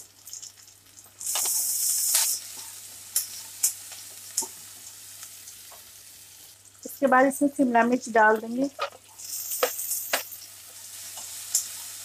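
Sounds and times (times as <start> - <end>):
food sizzling in hot oil: 0.0 - 12.0
spatula clicking against pan: 11.2 - 11.8.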